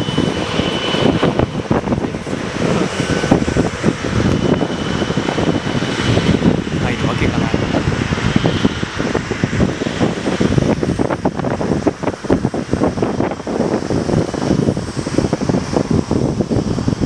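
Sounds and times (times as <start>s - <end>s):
jet engines rumbling: 0.0s - 17.0s
wind buffeting microphone: 0.0s - 17.0s.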